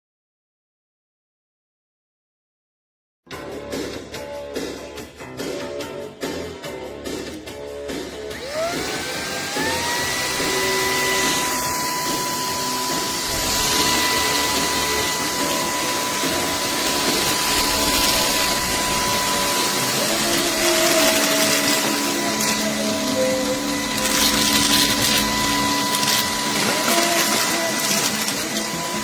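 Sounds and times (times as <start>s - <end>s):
vacuum motor whine: 8.2s - 29.0s.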